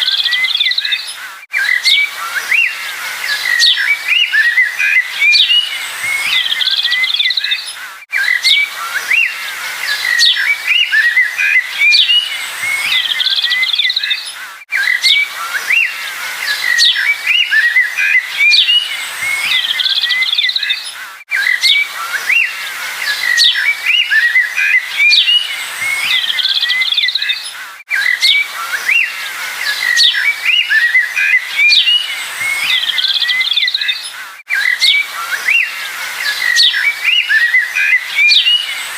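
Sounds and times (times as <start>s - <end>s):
songbirds chirping and twittering: 0.0s - 38.9s.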